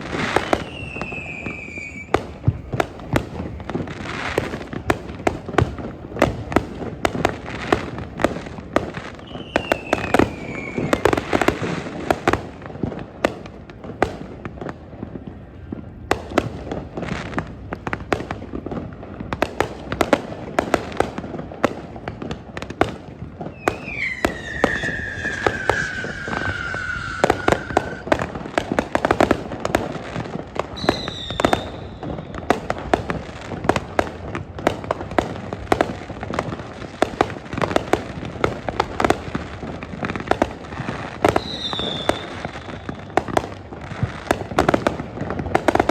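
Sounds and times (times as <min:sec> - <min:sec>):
falling firework whistle: 0:00.0 - 0:04.9, 0:09.1 - 0:11.8, 0:23.5 - 0:28.3, 0:30.6 - 0:32.7, 0:41.2 - 0:43.4
firework bangs and crackles: 0:00.0 - 0:45.9
short high whistles: 0:00.6 - 0:02.1.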